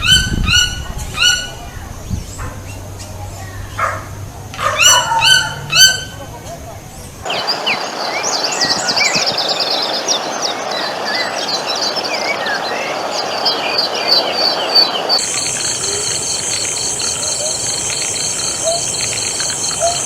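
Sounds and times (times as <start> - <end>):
small birds chirping: 4.8 - 20.0
steady noisy background: 5.6 - 20.0
high pulsing insect trill: 6.0 - 20.0.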